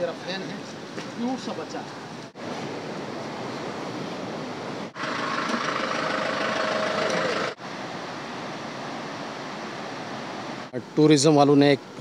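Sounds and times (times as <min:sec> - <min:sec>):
wet street noise: 0:00.0 - 0:12.0
vehicle engine idling: 0:05.0 - 0:07.6.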